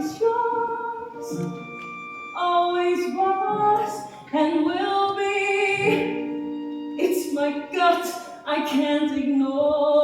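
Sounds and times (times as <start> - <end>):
musical accompaniment: 0.0 - 9.1.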